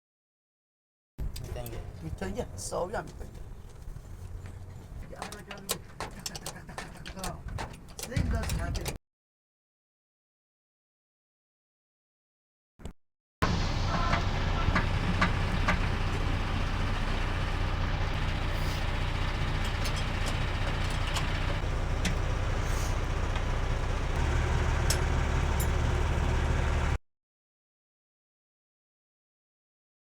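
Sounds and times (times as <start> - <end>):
diesel truck engine idling: 13.4 - 27.0.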